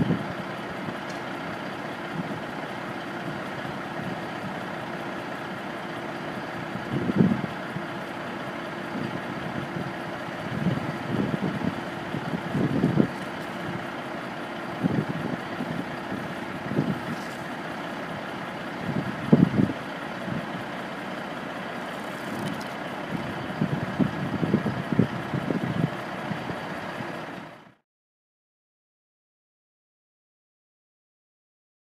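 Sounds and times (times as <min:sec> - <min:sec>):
wind buffeting microphone: 0:00.0 - 0:01.0, 0:06.6 - 0:07.9, 0:08.9 - 0:14.0, 0:14.7 - 0:17.5, 0:18.1 - 0:20.7, 0:22.4 - 0:27.1
diesel truck engine idling: 0:00.0 - 0:27.8.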